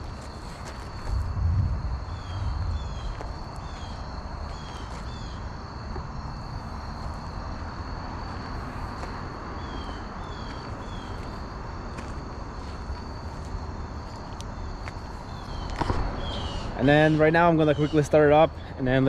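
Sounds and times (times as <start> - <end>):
high insect drone: 0.0 - 19.0
low steady rumble: 1.0 - 4.6
descending bird chirps: 15.3 - 18.2.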